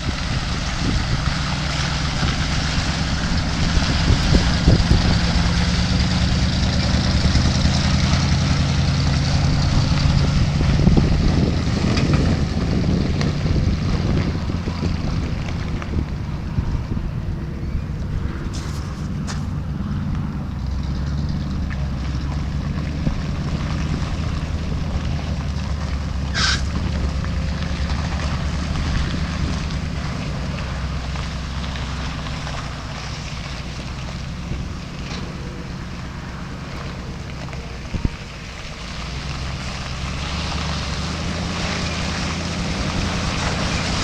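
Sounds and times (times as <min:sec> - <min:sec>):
truck engine running: 0:00.0 - 0:44.0
brief hiss: 0:26.3 - 0:26.7.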